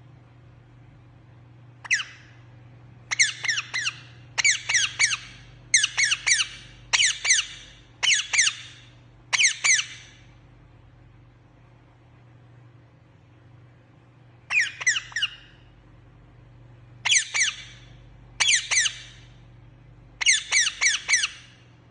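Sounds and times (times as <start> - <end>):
parrot squawking: 1.8 - 2.4, 3.1 - 10.2, 14.5 - 15.6, 17.0 - 19.3, 20.2 - 21.6.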